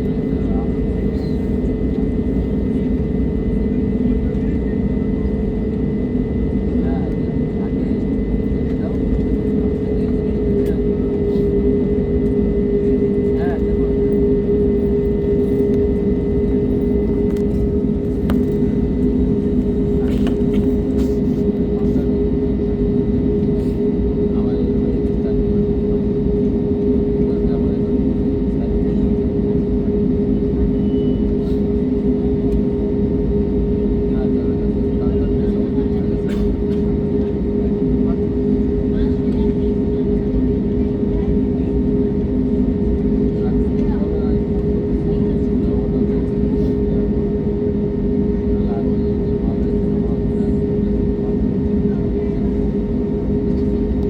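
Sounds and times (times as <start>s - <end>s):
jet engines droning in cabin: 0.0s - 54.0s.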